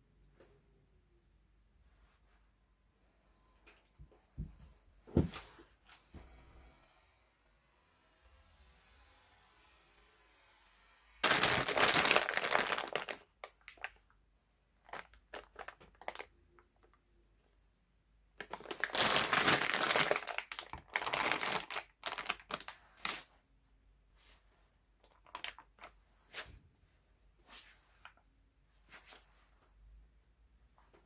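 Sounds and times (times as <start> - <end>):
packaging crinkling: 11.2 - 14.0, 14.9 - 16.3, 18.4 - 23.2.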